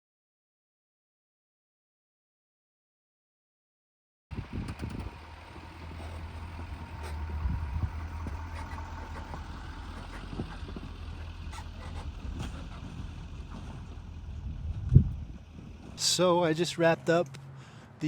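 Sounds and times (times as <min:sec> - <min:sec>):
vehicle engine humming: 0:04.3 - 0:18.0.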